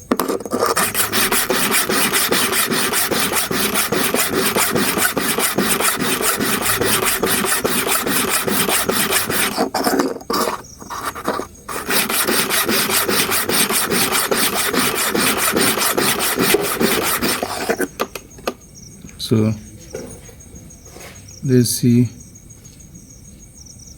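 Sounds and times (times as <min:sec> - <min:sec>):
metal blade rasping on sharpening stone: 0:00.2 - 0:18.0.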